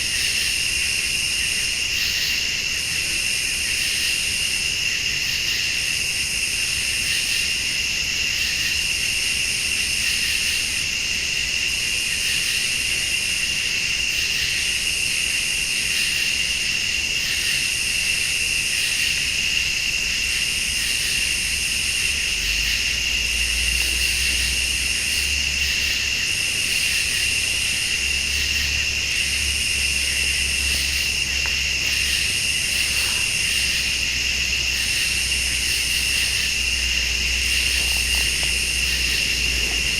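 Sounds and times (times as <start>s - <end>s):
cricket trill: 0.0s - 39.9s
pulsing insect call: 0.0s - 39.9s
low rumble: 36.5s - 39.9s.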